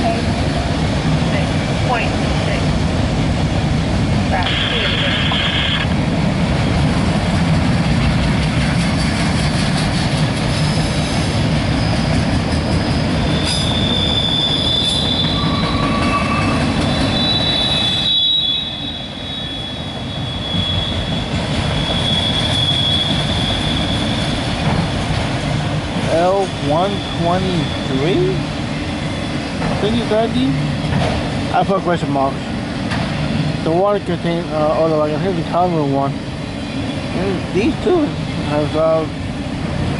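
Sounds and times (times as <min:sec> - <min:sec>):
freight train rumbling past: 0:00.0 - 0:39.9
train wheels squealing: 0:08.8 - 0:24.6, 0:26.1 - 0:28.4.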